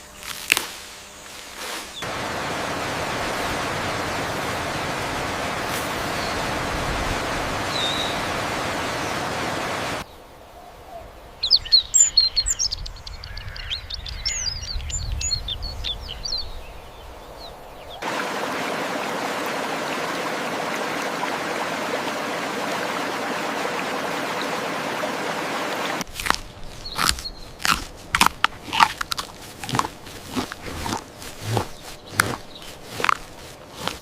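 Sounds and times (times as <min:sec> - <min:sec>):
steady even hiss: 0:00.0 - 0:10.1.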